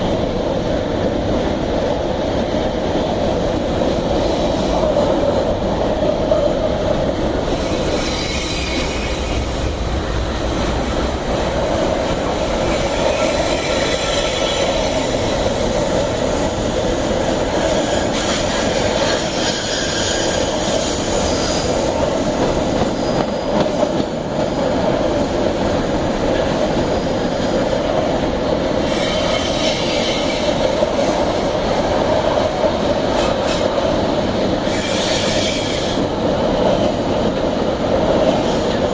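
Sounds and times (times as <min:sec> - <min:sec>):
train wheels rumbling on track: 0:00.0 - 0:38.9
high-pitched wheel squeal: 0:07.5 - 0:09.5.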